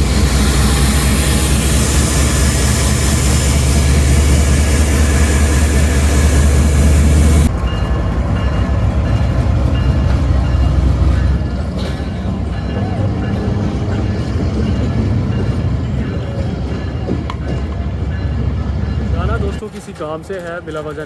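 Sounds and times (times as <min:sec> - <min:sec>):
diesel locomotive running: 0:00.0 - 0:21.0
locomotive idling hum: 0:00.0 - 0:21.0
rail noise: 0:00.0 - 0:21.0.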